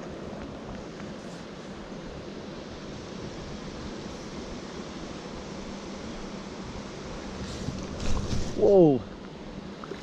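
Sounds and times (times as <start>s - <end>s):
stream water running: 0.0s - 10.0s
faint water splashing: 7.3s - 10.0s.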